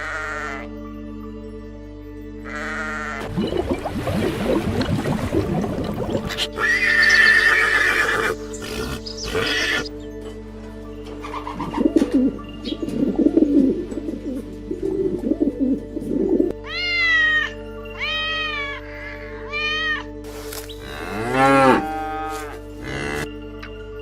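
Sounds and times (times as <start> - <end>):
background music: 0.0 - 24.0
cow mooing: 20.8 - 23.3.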